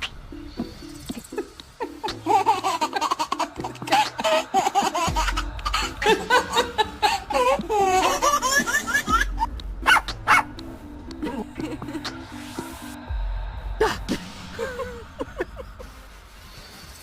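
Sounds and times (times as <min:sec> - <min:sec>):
music with repeating beat: 0:00.0 - 0:16.2
person laughing heartily: 0:01.2 - 0:09.4, 0:11.2 - 0:12.3, 0:13.8 - 0:16.1.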